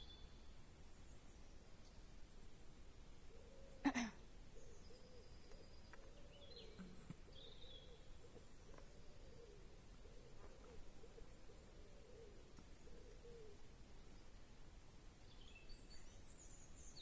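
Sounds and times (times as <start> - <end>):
low wavering cooing: 6.0 - 13.6.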